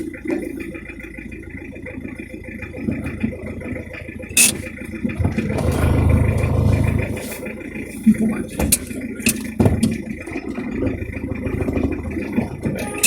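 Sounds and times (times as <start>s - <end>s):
diesel engine droning: 0.0s - 9.3s.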